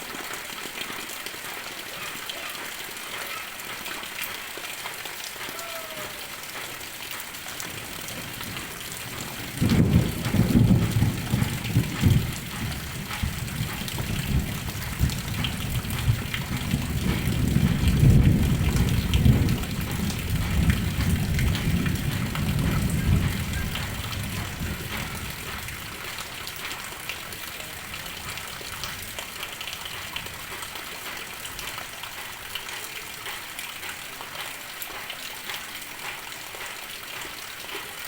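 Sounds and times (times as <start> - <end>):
heavy rain: 0.0 - 38.0
thunder rumbling: 7.5 - 30.8.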